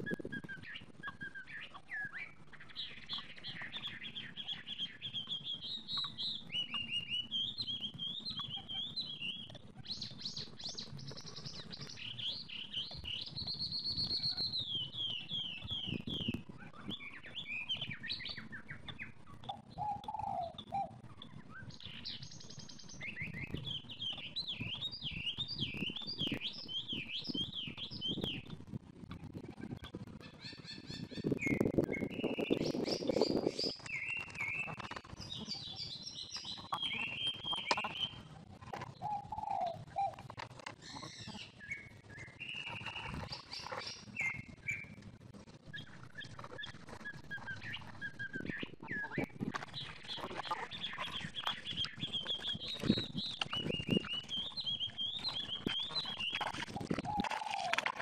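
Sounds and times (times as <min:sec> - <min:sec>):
birds chirping and calling: 0:00.1 - 0:28.6, 0:29.2 - 0:58.0
long held bird whistle: 0:30.7 - 0:38.2, 0:41.5 - 0:44.9, 0:45.7 - 0:57.7.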